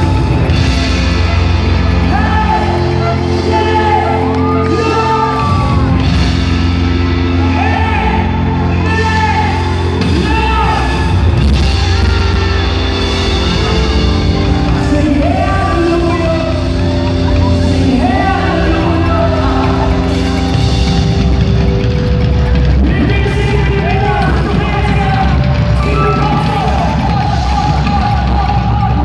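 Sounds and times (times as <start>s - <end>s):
bass notes: 0.0s - 29.0s
live rock music: 0.0s - 29.0s
person singing: 14.6s - 21.6s.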